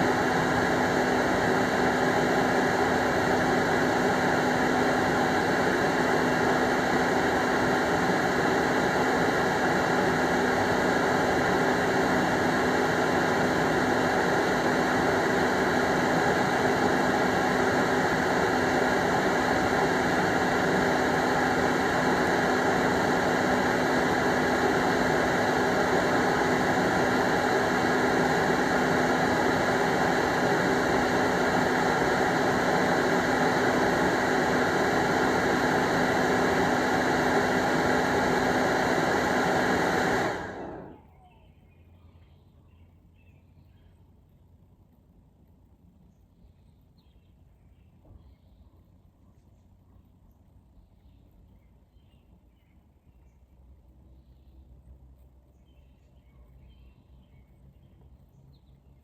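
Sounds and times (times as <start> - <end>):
leaf blower rushing air: 0.0 - 41.4.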